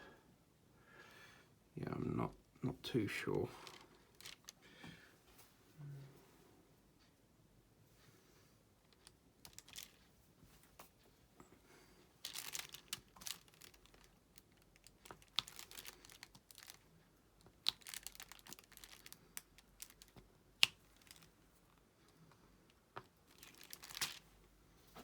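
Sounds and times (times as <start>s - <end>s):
plastic film crinkling: 3.6s - 4.6s, 8.9s - 10.1s, 12.2s - 21.4s, 23.0s - 24.4s
small plastic clicks: 17.4s - 21.4s.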